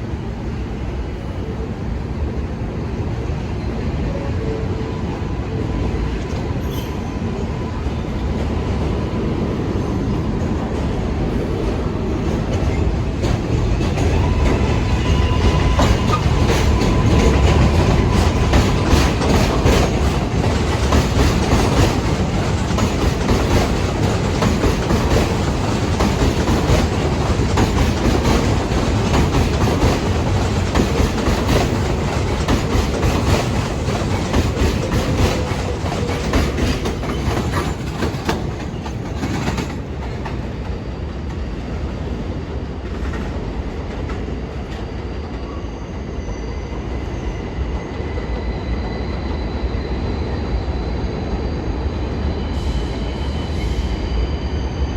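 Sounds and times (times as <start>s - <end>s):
train wheels clacking over rail joints: 12.2s - 40.8s.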